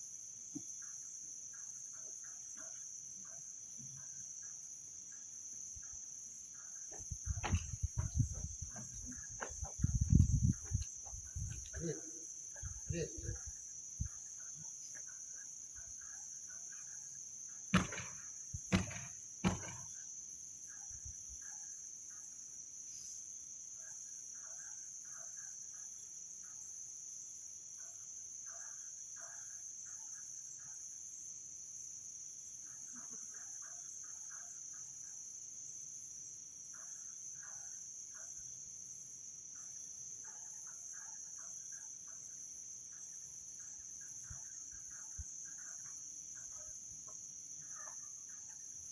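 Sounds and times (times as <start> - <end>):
crickets chorus: 0.0 - 48.9
loud sharp knocks: 17.7 - 19.9.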